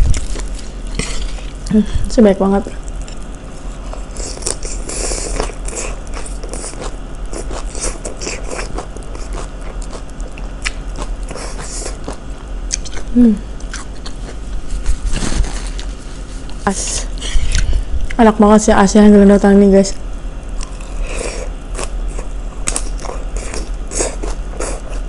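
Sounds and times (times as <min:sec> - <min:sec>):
wet crunchy chewing: 0:02.8 - 0:18.2, 0:20.5 - 0:25.0.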